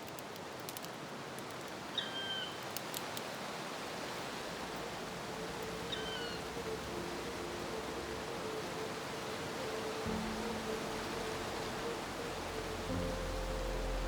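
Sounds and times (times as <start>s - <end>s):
rain hiss: 0.0s - 14.0s
low held music tones: 4.3s - 14.0s.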